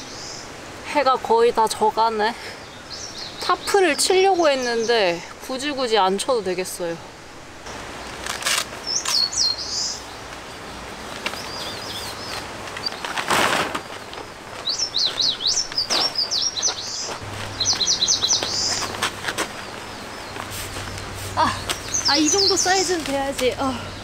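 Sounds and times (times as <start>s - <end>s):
songbird chirping: 0.0s - 24.0s
rustling: 8.0s - 9.3s, 10.3s - 23.8s.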